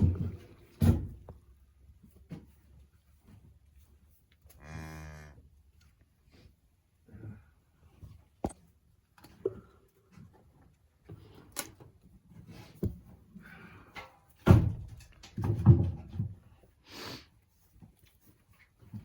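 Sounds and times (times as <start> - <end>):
irregular knocks and thumps: 0.0 - 1.5, 14.4 - 16.6.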